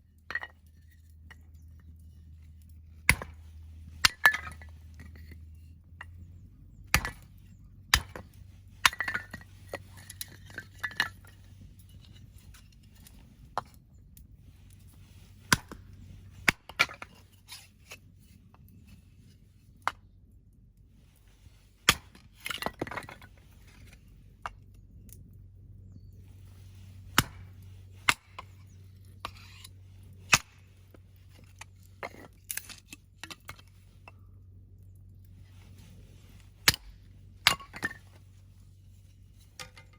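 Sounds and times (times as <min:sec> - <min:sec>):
axe splitting logs: 0:03.0 - 0:05.4, 0:06.9 - 0:11.3, 0:15.5 - 0:17.2, 0:21.9 - 0:24.0, 0:27.0 - 0:28.6, 0:30.3 - 0:30.6, 0:36.6 - 0:38.0
wood clattering: 0:06.9 - 0:11.4.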